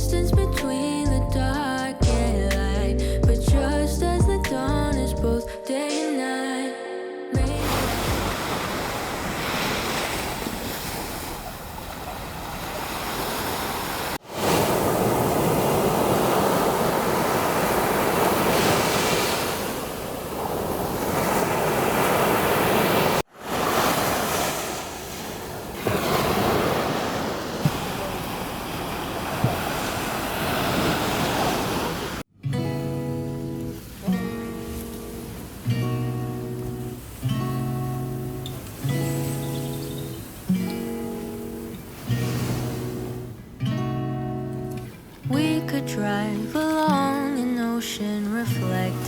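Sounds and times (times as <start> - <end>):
sea waves breaking on beach: 7.5 - 32.3, 33.5 - 43.8.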